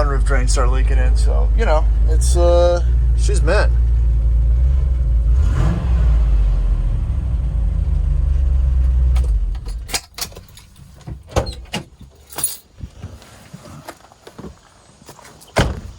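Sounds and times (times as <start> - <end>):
car engine idling: 0.0 - 12.4.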